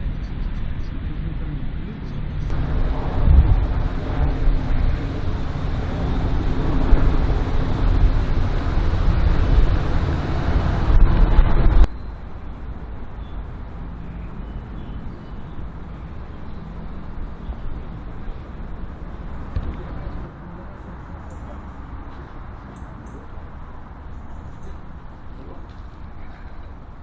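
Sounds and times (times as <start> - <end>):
race car engine running: 2.4 - 11.9.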